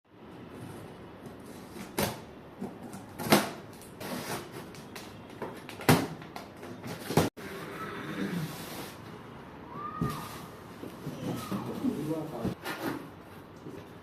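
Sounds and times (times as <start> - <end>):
packaging scraping and rustling: 2.7 - 5.9.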